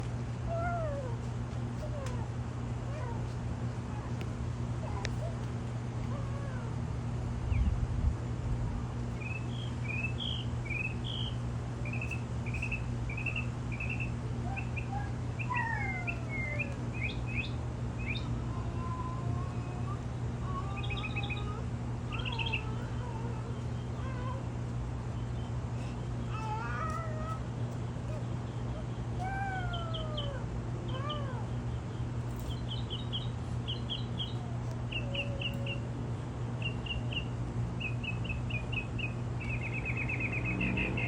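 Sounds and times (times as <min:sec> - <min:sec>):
steady low hum: 0:00.0 - 0:41.0
small birds chirping: 0:09.0 - 0:41.0.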